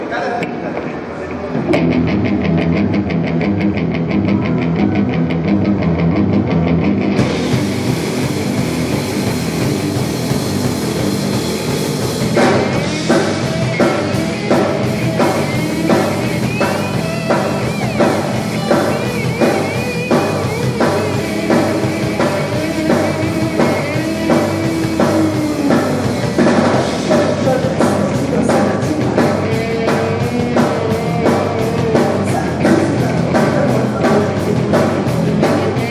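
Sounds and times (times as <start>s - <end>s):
punk rock band playing: 1.0s - 35.9s
guitar and bass riff: 1.5s - 35.9s
cymbals and drums: 7.2s - 35.9s.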